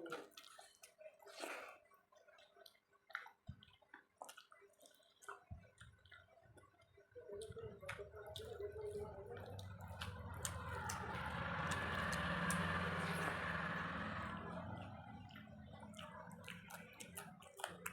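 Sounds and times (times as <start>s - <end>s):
person chewing food: 0.0s - 17.9s
low steady hum: 7.8s - 17.9s.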